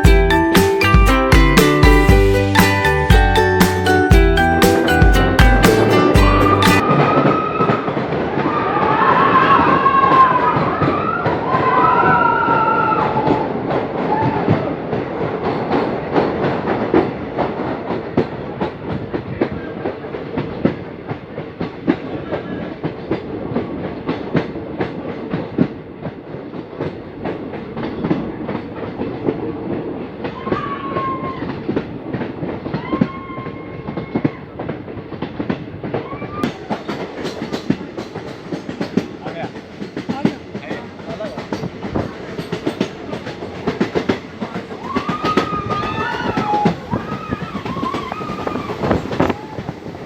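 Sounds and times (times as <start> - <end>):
train rumbling along track: 3.4 - 50.0
wheels clacking over rail joints: 33.9 - 50.0.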